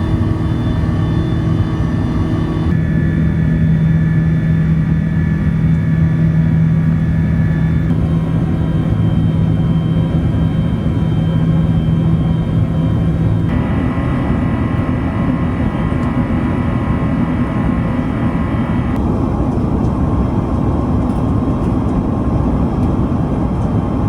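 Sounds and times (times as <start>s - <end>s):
aircraft cabin engine noise: 0.0s - 24.0s
steady tones: 13.5s - 19.0s.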